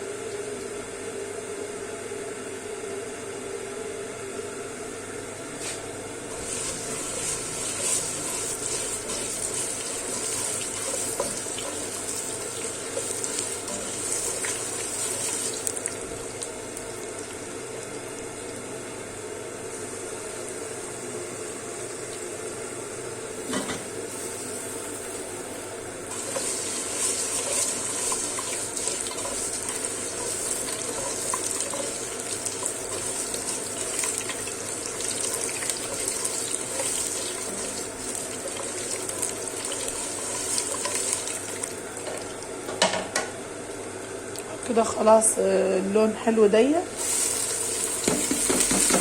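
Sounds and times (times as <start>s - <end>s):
noodles sizzling in hot fat: 5.6s - 45.8s, 46.5s - 49.0s
spoon knocking on a pot: 48.1s - 49.0s.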